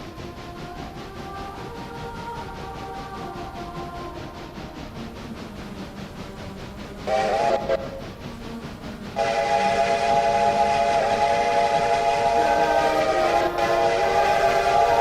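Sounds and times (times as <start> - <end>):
faint rhythmic beat: 0.0 - 15.0
train whistle blasts: 7.1 - 7.9, 9.2 - 15.0.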